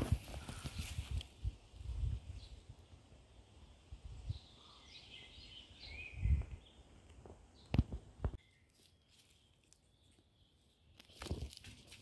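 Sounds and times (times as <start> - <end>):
small birds chirping: 2.2 - 11.5.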